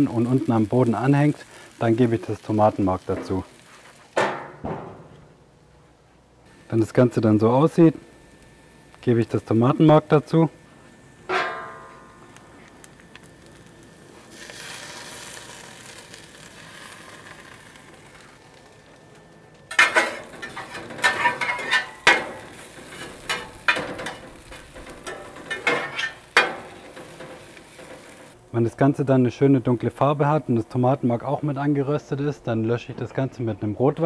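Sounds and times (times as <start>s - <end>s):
vegetables sizzling in a pan: 0.0s - 4.2s, 11.8s - 19.1s, 19.7s - 28.4s
spatula scraping a pan: 19.7s - 28.3s.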